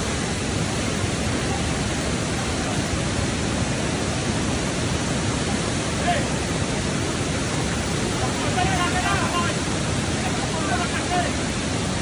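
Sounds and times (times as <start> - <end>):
storm rushing noise: 3.6 - 12.0.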